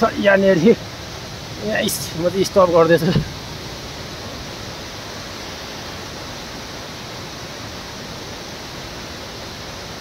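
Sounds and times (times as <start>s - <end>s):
flowing water rushing: 0.0s - 10.0s.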